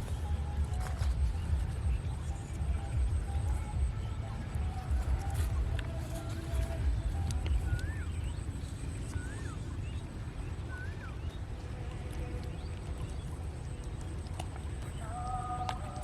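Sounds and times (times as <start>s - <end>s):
bird whistle: 0.0s - 11.5s
low rumble: 0.0s - 16.0s.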